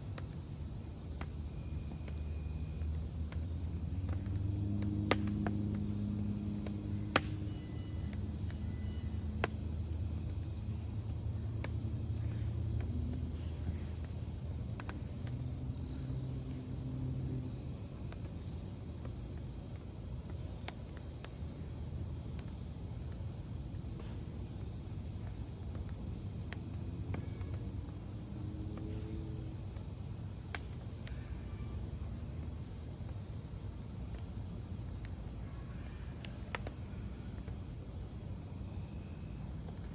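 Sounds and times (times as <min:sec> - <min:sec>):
fire crackling pops: 0:00.0 - 0:31.5, 0:32.3 - 0:38.1
campfire burning rumble: 0:00.0 - 0:39.9
crickets chirping: 0:00.0 - 0:39.9.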